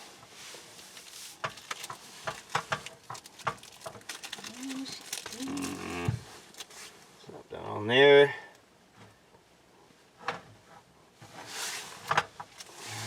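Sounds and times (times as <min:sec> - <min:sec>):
utensils clicking and scraping: 0:01.4 - 0:05.8.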